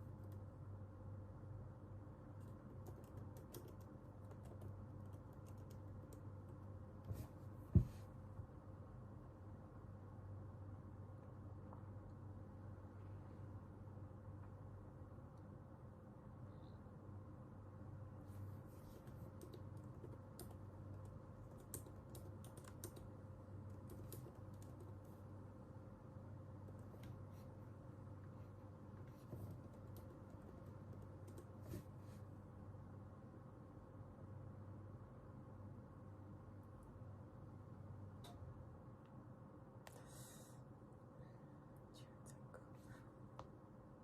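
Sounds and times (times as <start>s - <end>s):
faint steady hum: 0.0s - 44.0s
keyboard typing: 2.4s - 6.7s, 18.9s - 25.2s, 28.9s - 31.8s
dull thump: 7.7s - 8.0s.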